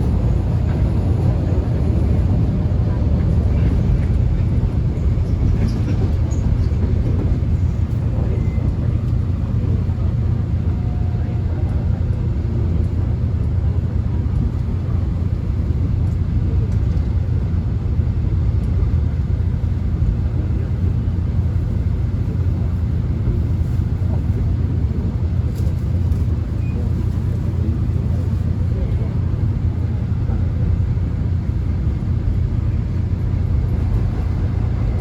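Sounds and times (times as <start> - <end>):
subway train rumble: 0.0 - 35.0.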